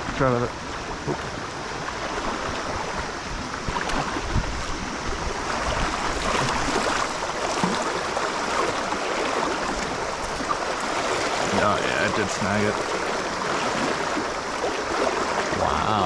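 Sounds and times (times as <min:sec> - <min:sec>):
stream water running: 0:00.0 - 0:16.0
small splashes and knocks: 0:03.6 - 0:15.6.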